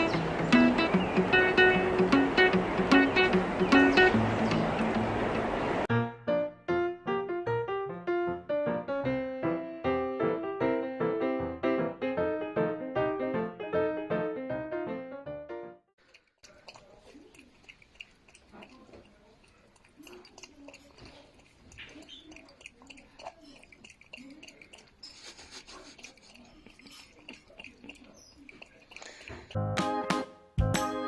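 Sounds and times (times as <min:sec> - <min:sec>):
animal lapping water: 0:00.0 - 0:05.9, 0:16.0 - 0:29.6.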